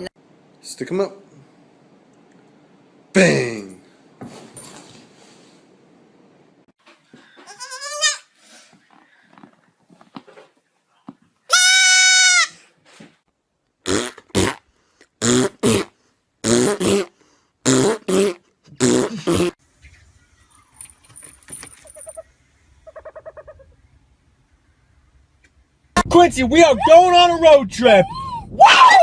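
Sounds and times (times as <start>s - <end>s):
animal calling: 21.7s - 24.1s.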